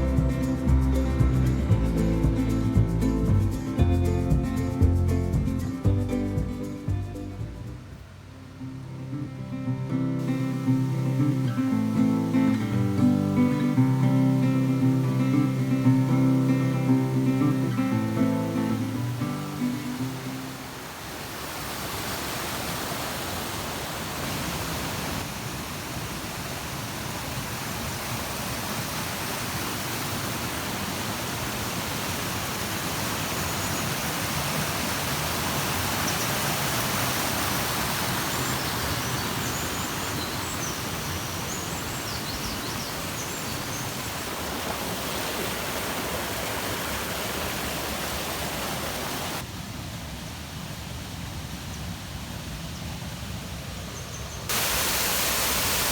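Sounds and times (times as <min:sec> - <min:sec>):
waterfall rushing: 0:08.0 - 0:49.6, 0:54.5 - 0:55.9.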